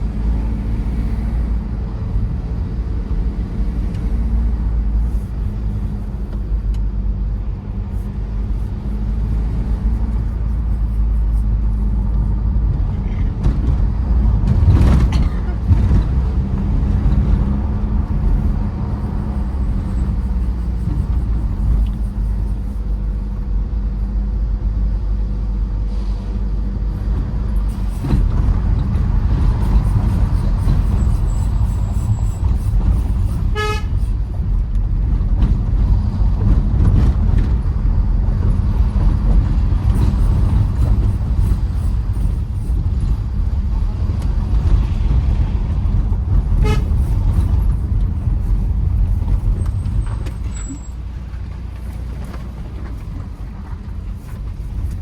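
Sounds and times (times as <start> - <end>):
diesel engine running: 0.0 - 55.0
road noise: 0.0 - 55.0
short horn toot: 33.3 - 34.2, 46.6 - 47.2.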